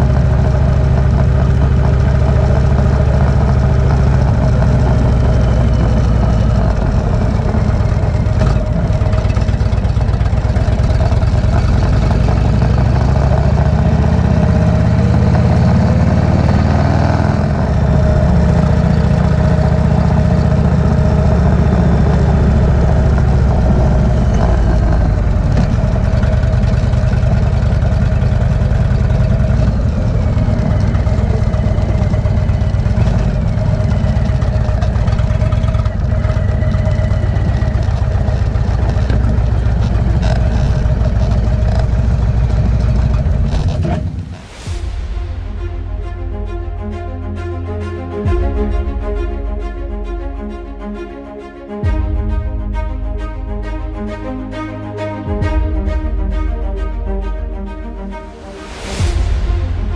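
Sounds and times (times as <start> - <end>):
motorcycle engine running: 0.0 - 45.7.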